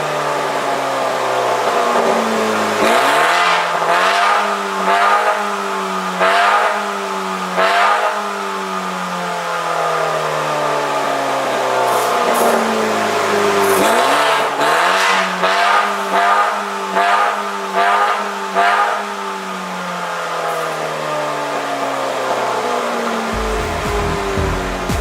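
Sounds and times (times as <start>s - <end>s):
car engine revving: 0.0s - 25.0s
exhaust bursts: 23.2s - 25.0s.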